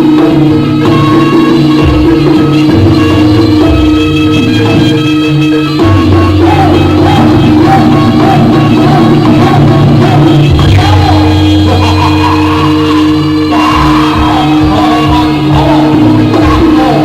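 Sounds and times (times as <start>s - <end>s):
amplified live music: 0.0s - 17.0s
person singing: 0.0s - 17.0s
people shouting: 5.8s - 17.0s.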